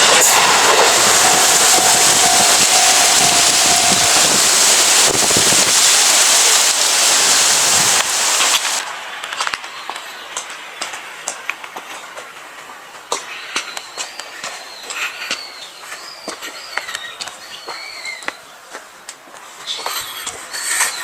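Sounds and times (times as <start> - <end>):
train wheels rattling on rails: 0.0 - 8.8.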